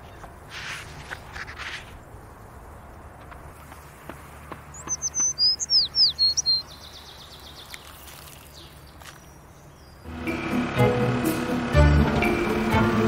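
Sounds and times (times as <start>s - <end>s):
low outdoor hum: 0.0s - 13.0s
songbird singing: 2.1s - 10.1s.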